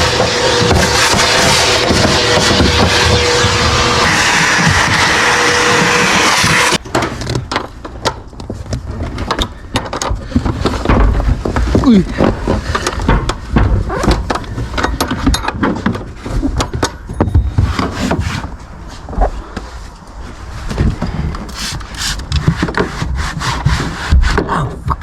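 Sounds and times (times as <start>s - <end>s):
hands rubbing and scraping: 17.6s - 24.5s.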